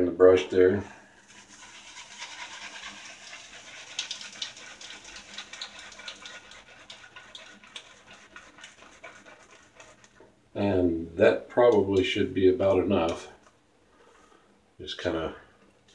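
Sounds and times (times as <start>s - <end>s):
shaving brush on soap: 1.2s - 10.2s.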